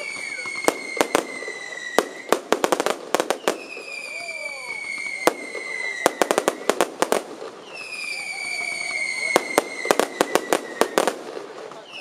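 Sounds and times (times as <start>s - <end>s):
high whistle sliding down: 0.0s - 2.5s, 3.3s - 6.8s, 7.6s - 11.0s
fireworks bangs and crackles: 0.0s - 12.0s.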